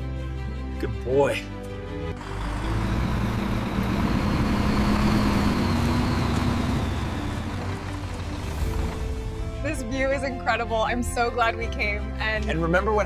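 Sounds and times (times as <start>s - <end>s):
vehicle engine rumbling: 2.1s - 10.5s.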